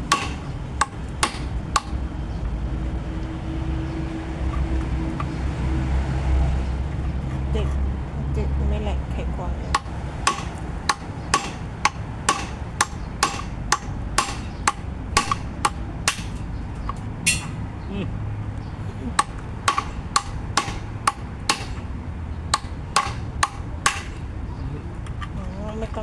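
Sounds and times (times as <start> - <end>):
hammer striking metal: 0.0 - 2.0, 9.7 - 17.7, 19.2 - 21.9, 22.5 - 24.3.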